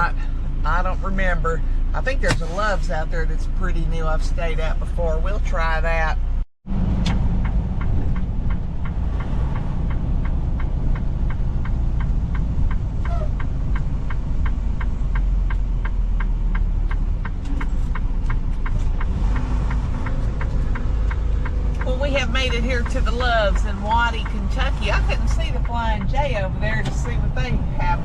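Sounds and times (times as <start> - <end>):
diesel truck engine and road rumble: 0.0 - 28.0
turn signal ticking: 6.7 - 28.0.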